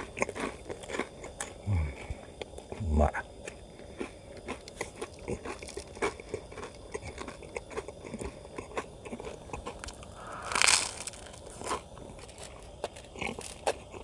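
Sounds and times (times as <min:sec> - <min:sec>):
person chewing crunchy food: 0:00.0 - 0:14.0
brief loud hiss: 0:10.0 - 0:11.4.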